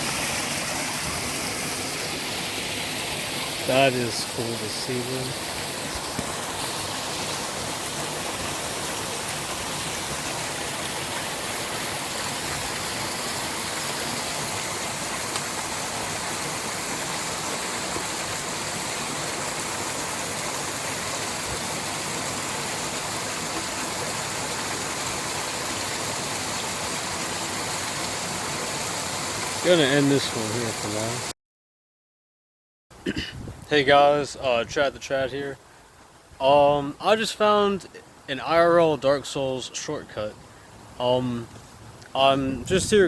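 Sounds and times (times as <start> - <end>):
small waterfall splashing: 0.0 - 31.3.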